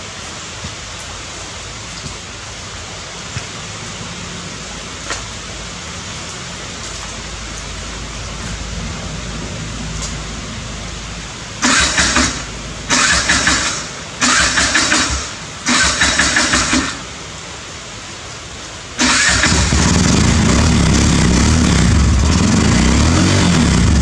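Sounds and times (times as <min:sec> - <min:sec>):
steady rain: 0:00.0 - 0:24.0
engine running: 0:06.9 - 0:17.6, 0:19.0 - 0:24.0
vehicle engine cranking: 0:11.6 - 0:17.2, 0:19.0 - 0:24.0.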